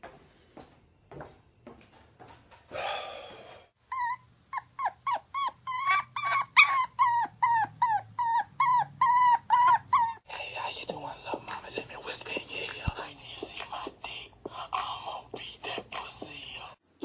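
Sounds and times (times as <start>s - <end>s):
small dog yapping: 4.0s - 10.2s.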